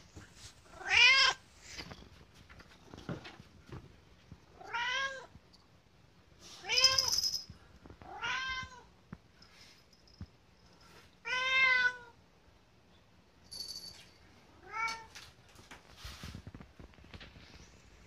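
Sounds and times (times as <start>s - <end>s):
cat meowing: 4.6s - 5.3s, 8.1s - 8.9s, 11.2s - 12.2s.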